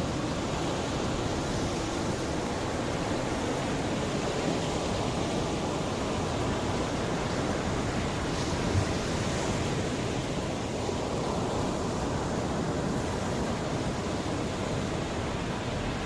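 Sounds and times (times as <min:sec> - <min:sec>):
sea waves washing on shore: 0:00.0 - 0:16.0.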